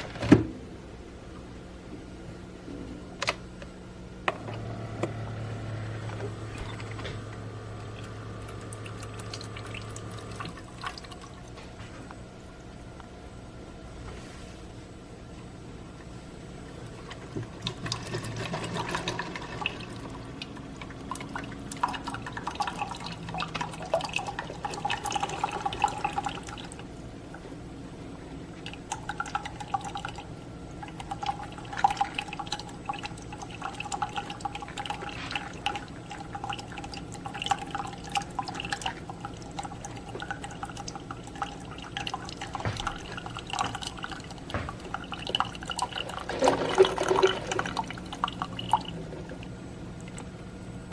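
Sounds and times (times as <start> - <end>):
coffee pouring into a cup: 4.5 - 11.6, 16.7 - 27.4, 28.6 - 50.4.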